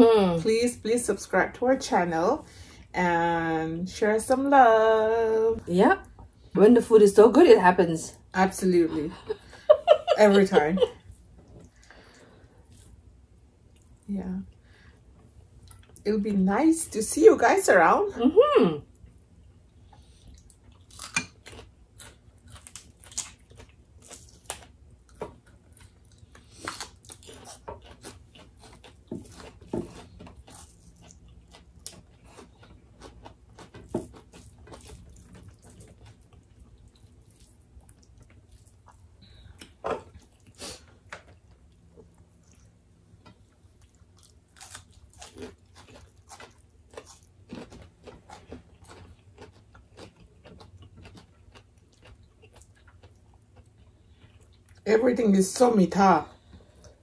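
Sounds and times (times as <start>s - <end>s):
close-miked chewing and biting: 19.8s - 54.8s.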